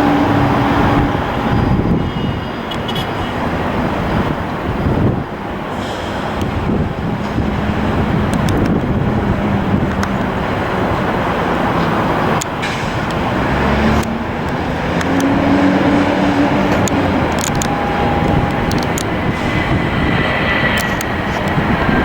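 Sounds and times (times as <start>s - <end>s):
jet engine noise: 0.0s - 22.0s.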